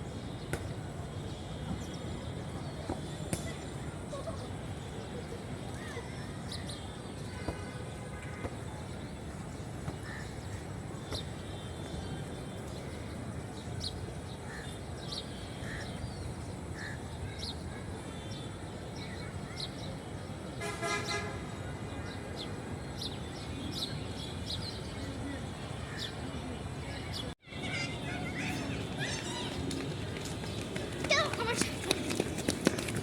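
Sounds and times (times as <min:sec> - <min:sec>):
urban background noise: 0:00.0 - 0:33.0
vehicle horn: 0:20.6 - 0:21.6.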